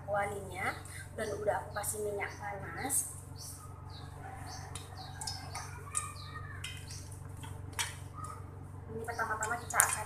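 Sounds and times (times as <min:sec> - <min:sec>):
bird chirping: 0:00.6 - 0:07.2.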